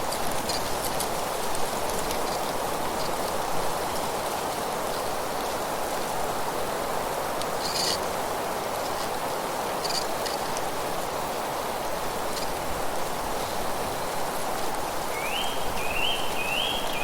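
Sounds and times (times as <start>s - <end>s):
wind rustling leaves: 0.0s - 17.0s.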